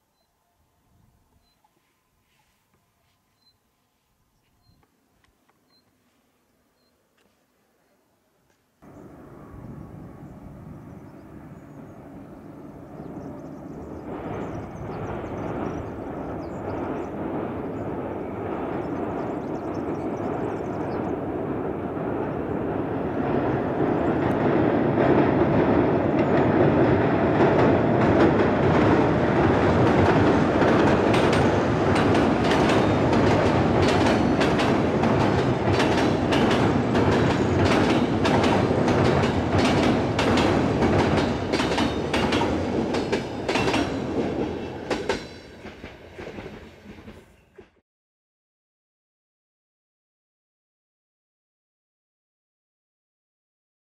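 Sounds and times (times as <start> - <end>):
train rumble on bridge: 8.8 - 47.8
train wheels clacking over rail joints: 24.2 - 47.8.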